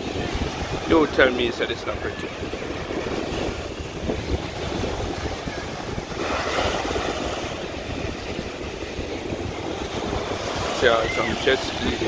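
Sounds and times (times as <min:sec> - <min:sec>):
ocean surf: 0:00.0 - 0:12.0
wind buffeting microphone: 0:00.0 - 0:12.0.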